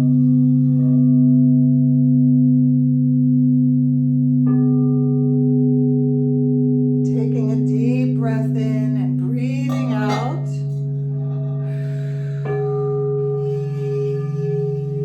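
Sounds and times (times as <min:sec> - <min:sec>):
singing bowl ringing: 0:04.4 - 0:15.0
wordless sung voice: 0:07.1 - 0:10.8.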